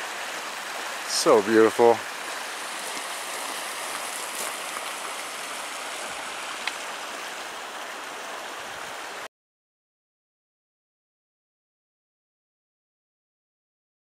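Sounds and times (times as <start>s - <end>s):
creek water rushing over rocks: 0.0s - 9.3s.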